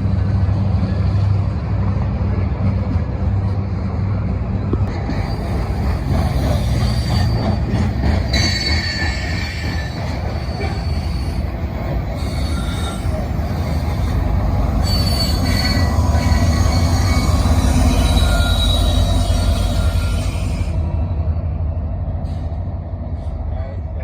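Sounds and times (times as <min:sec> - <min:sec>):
heavy train rumble: 0:00.0 - 0:24.0
train wheels squealing on rails: 0:04.6 - 0:21.4, 0:22.1 - 0:23.6.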